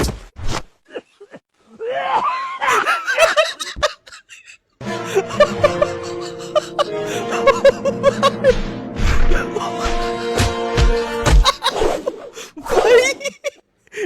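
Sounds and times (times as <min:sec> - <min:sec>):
background music: 0:04.8 - 0:12.0.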